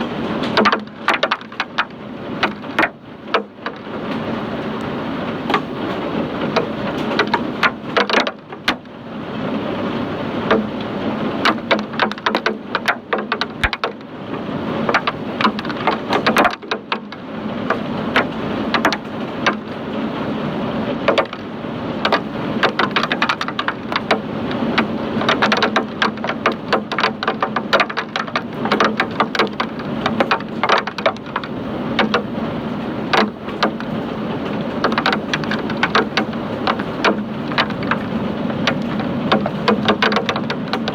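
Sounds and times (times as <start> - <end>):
hailstones rattling: 0.1 - 4.4, 21.1 - 40.9.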